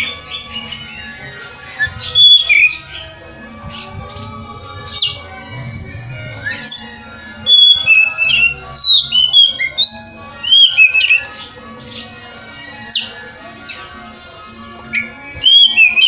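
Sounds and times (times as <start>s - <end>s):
bird singing whistled notes: 0.0s - 1.2s, 1.8s - 3.9s, 4.8s - 5.3s, 6.2s - 12.1s, 12.8s - 13.8s, 14.9s - 16.0s.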